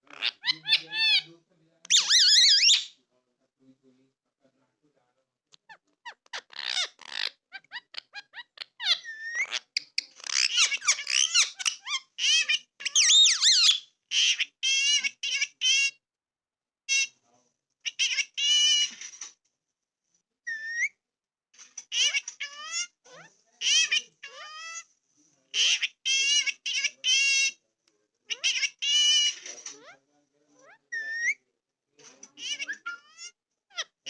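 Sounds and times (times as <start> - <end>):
parrot squeaks and screeches: 0.0 - 1.3, 1.9 - 3.0, 5.6 - 16.0, 16.9 - 17.2, 17.8 - 19.4, 20.4 - 21.0, 21.6 - 24.9, 25.5 - 27.6, 28.3 - 30.0, 30.6 - 31.4, 32.1 - 34.0.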